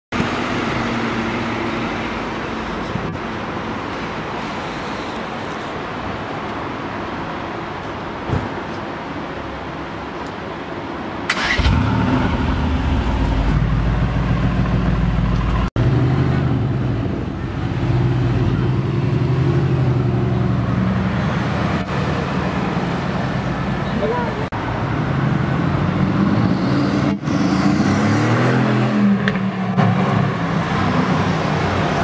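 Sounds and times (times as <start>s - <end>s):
car engine starting and idling: 11.2s - 16.0s
car pulling away: 11.3s - 17.0s.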